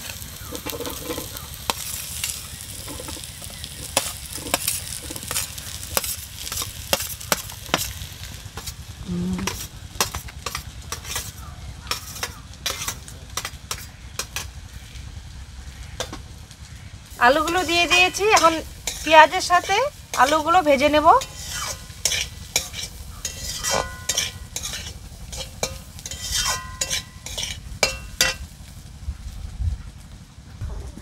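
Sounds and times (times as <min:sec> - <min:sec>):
potatoes sizzling in oil: 0:00.0 - 0:29.0
utensil tapping and scraping pan: 0:02.8 - 0:08.0, 0:09.5 - 0:14.5, 0:17.4 - 0:20.6, 0:21.2 - 0:28.4.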